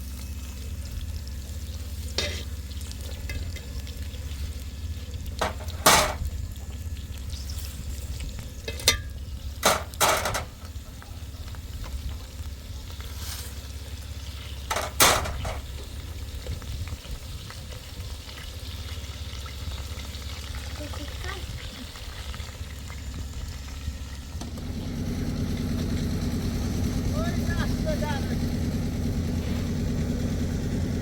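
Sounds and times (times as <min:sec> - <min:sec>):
shovels scraping wet concrete: 0:02.2 - 0:02.5.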